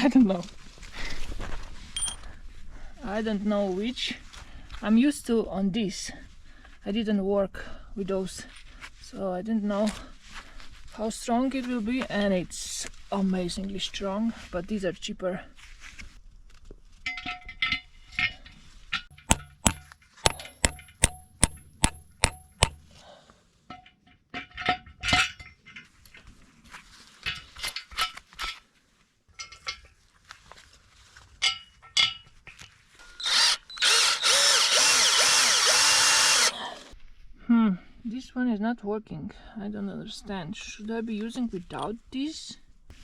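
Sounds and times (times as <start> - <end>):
ringing metal strikes: 19.2 - 22.9
power drill drilling into concrete: 33.0 - 36.9.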